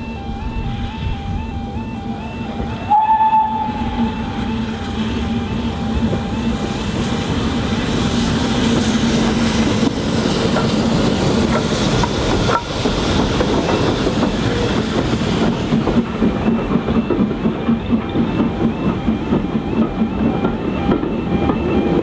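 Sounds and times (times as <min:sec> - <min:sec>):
train wheels clattering over rail joints: 0:05.9 - 0:22.0.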